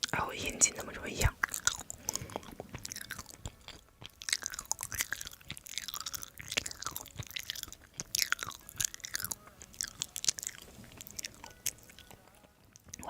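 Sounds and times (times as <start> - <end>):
chewing with wet mouth smacks: 0.8 - 13.0.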